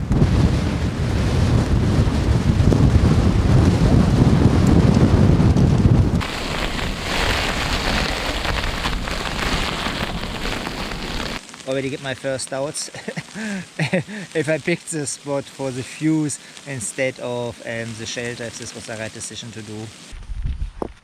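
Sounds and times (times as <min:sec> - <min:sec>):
wind buffeting microphone: 0:00.0 - 0:11.4
precipitation pattering down: 0:00.0 - 0:20.0.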